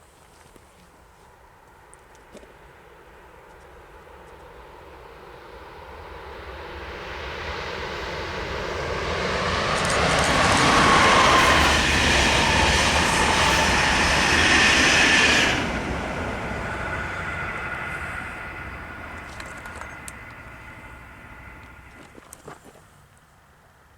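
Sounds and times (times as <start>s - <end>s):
train passing: 4.6s - 22.2s
high steady rail tones: 6.8s - 22.2s.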